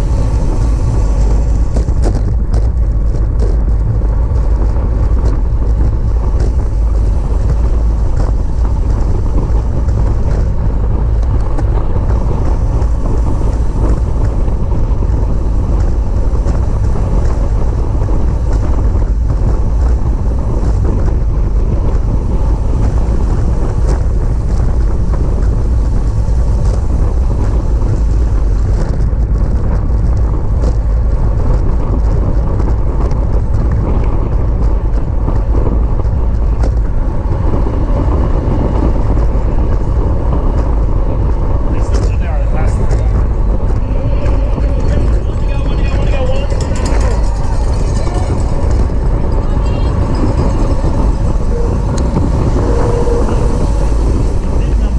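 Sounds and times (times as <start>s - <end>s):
wind noise on microphone: 0.0s - 54.9s.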